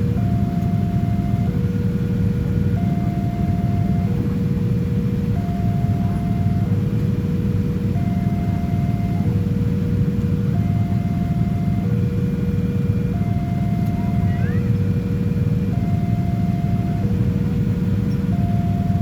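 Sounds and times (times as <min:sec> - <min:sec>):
level crossing alarm two tones: 0:10.5 - 0:11.9, 0:13.2 - 0:14.8, 0:15.7 - 0:17.2.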